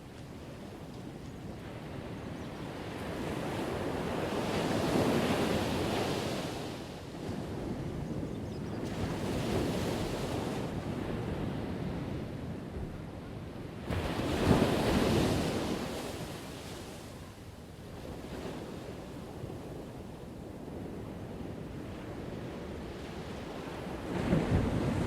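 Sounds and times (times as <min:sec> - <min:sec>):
ocean waves crashing on shore: 0:01.6 - 0:07.8, 0:13.7 - 0:17.3, 0:21.6 - 0:25.0.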